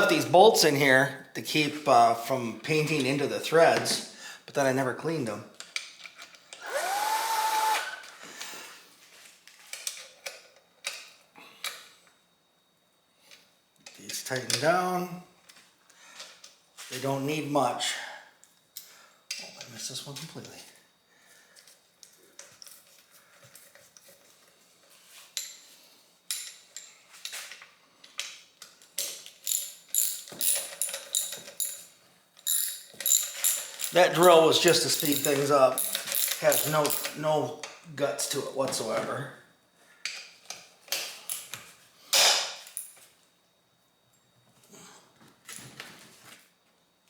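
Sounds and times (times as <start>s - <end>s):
drill winding up: 6.6s - 8.6s, 32.5s - 37.1s.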